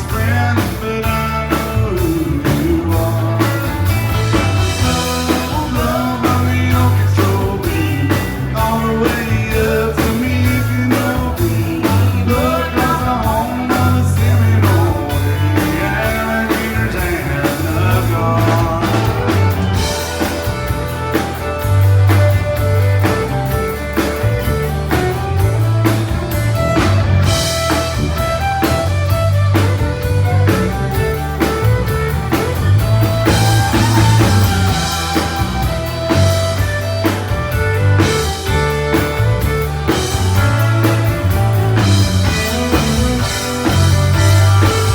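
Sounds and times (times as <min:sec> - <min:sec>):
person singing: 0:00.0 - 0:20.5
drum kit beat: 0:00.0 - 0:44.9
guitar: 0:00.0 - 0:44.9
pulsing bass: 0:00.0 - 0:44.9.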